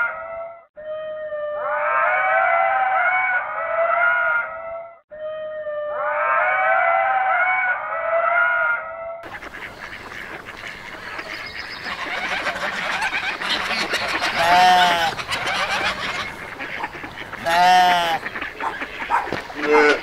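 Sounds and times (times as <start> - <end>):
fowl calling and chattering: 6.0 - 20.0
loud drawn-out bird call: 6.0 - 20.0.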